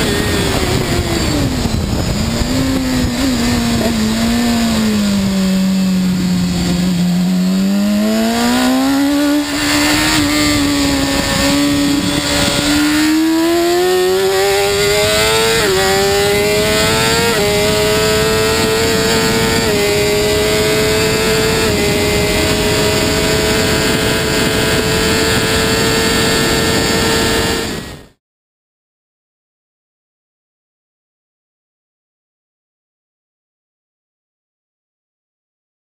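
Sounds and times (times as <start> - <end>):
gear upshifts: 0.0 - 27.9
motorcycle engine revving: 0.0 - 28.2.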